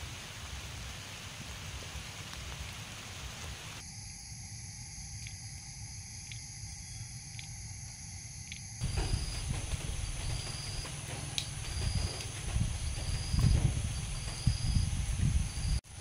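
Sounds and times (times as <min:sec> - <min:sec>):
steady rain hiss: 0:00.0 - 0:16.0
faint clicks: 0:07.3 - 0:15.8.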